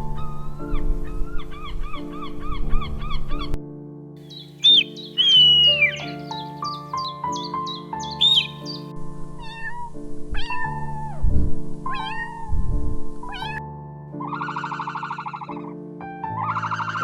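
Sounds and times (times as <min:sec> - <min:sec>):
background music: 0:00.0 - 0:17.0
animal calling: 0:04.3 - 0:08.9.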